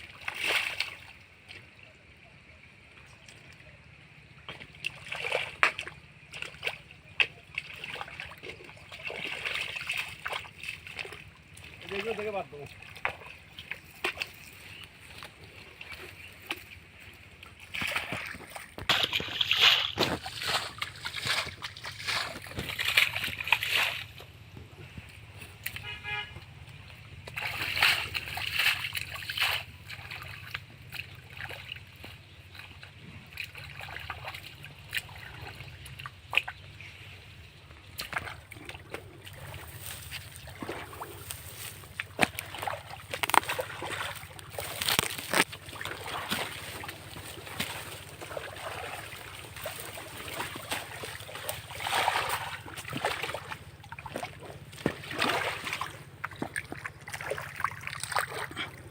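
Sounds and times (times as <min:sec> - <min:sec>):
river water splashing: 0:00.0 - 0:58.9
short horn-like tone: 0:25.8 - 0:26.4.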